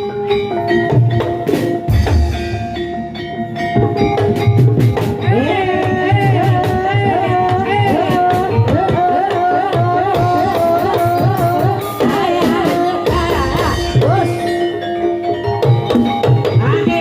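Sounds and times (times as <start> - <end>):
hand drum strokes: 0.8 - 14.7
person singing ornamented melody: 5.3 - 14.8.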